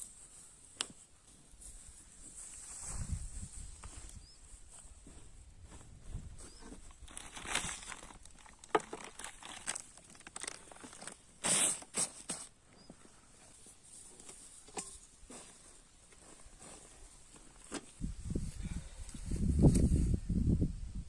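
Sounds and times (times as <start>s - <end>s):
rustling and crinkling handling: 0.0s - 18.0s.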